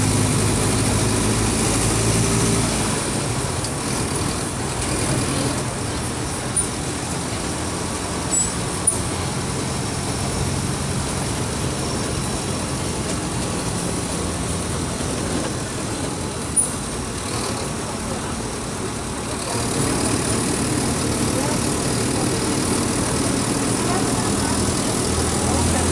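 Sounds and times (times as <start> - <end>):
bus diesel engine running: 0.0 - 25.9.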